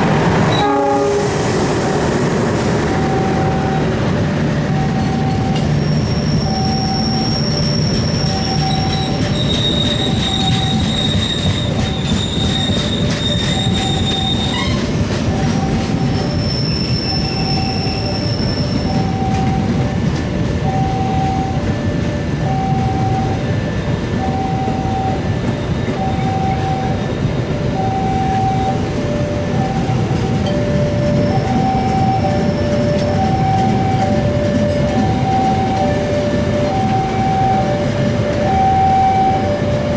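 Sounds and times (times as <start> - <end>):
train rumble on rails: 0.0 - 39.9
two-tone warning alarm: 0.0 - 39.9
train wheels squealing: 3.0 - 19.8.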